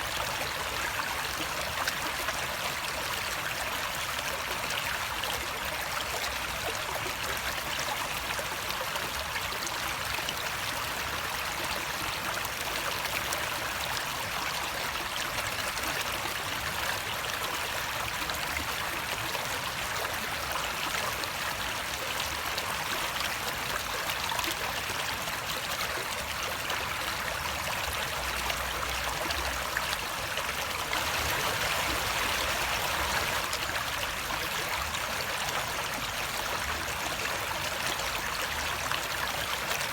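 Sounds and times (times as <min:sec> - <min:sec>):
running water trickling: 0:18.0 - 0:39.9.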